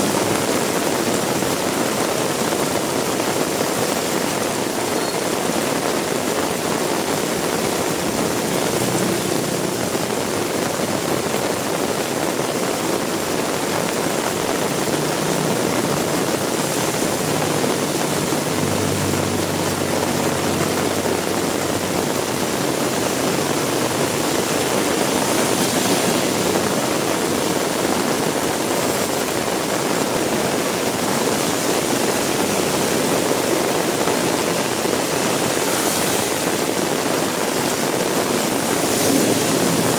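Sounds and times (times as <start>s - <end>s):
heavy rain hissing: 0.0s - 39.9s
passing vehicle engine hum: 7.4s - 11.4s, 13.8s - 29.1s, 38.2s - 39.9s.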